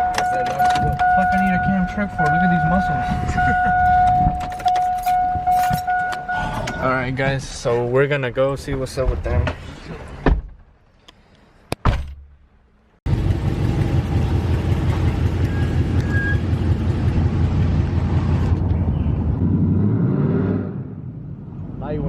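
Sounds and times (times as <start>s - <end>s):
pickup truck engine rumbling: 0.0s - 7.1s, 13.1s - 19.4s.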